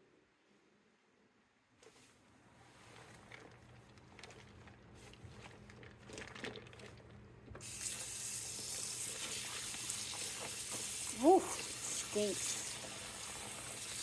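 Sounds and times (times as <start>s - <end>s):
tap water running into sink: 7.6s - 14.0s.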